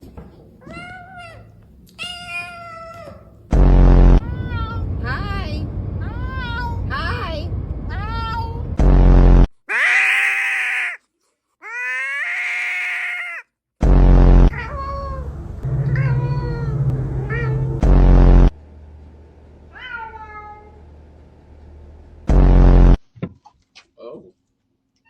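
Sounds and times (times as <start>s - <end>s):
low-heavy burst: 3.5s - 9.5s, 13.8s - 19.8s, 20.8s - 23.0s
cat meowing: 9.7s - 11.0s, 11.6s - 13.5s.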